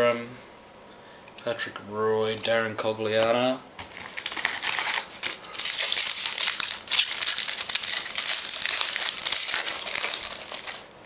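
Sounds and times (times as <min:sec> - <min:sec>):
foil wrapper crinkling: 0:03.8 - 0:10.9.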